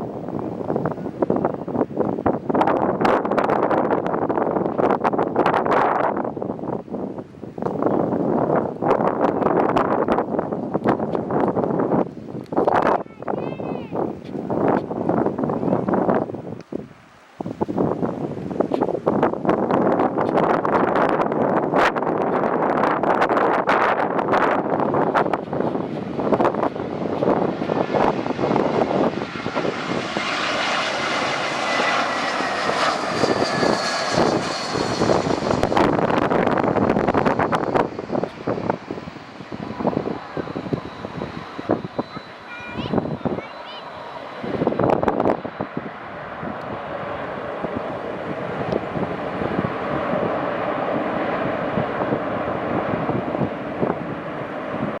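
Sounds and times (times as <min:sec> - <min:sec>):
jet engines roaring: 0:00.0 - 0:55.0
wind buffeting microphone: 0:00.0 - 0:55.0
thin engine whine: 0:23.8 - 0:55.0.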